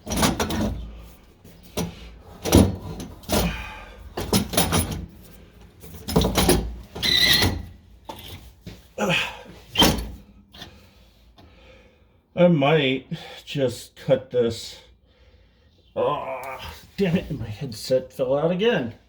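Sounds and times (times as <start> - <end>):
exhaust pipe knocking and scraping: 0.0 - 8.9.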